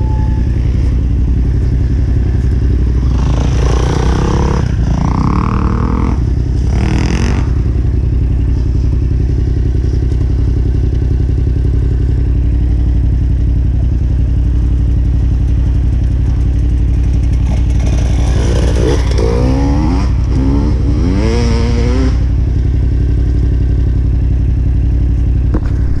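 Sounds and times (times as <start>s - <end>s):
second engine revving: 0.0s - 8.8s, 17.3s - 22.4s
motorcycle engine running at low revs: 0.0s - 26.0s.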